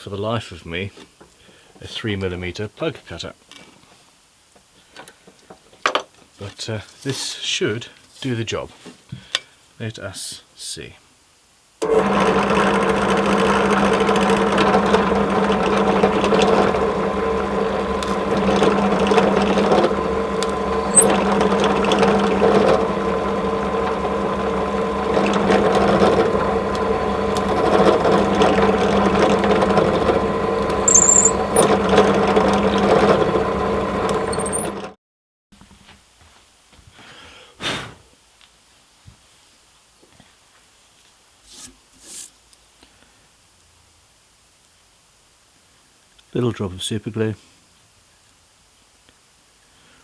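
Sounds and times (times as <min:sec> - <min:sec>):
power tool electric motor running: 0:11.8 - 0:35.0
small clicks: 0:13.0 - 0:34.9.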